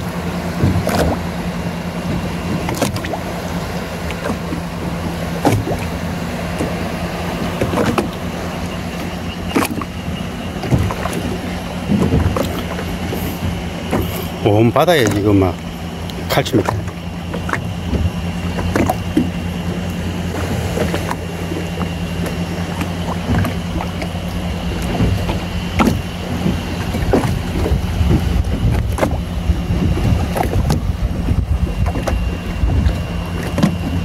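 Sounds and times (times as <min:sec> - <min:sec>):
boat engine humming: 0:00.0 - 0:34.0
water splashes and knocks: 0:00.0 - 0:34.0.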